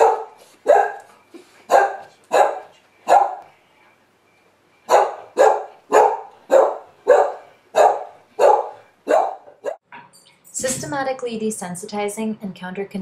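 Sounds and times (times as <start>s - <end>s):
dog barking: 0.0s - 1.1s, 1.7s - 3.5s, 4.9s - 9.8s.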